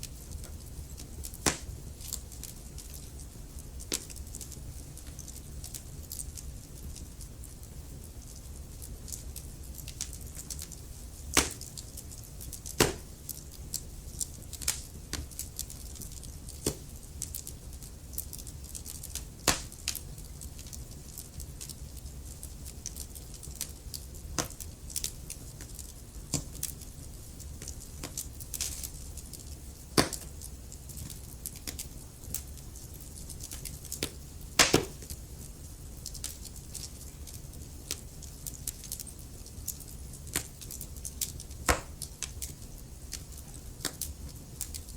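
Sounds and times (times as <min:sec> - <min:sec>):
low rumble of flames: 0:00.0 - 0:44.9
wood fire crackling and popping: 0:00.0 - 0:44.9.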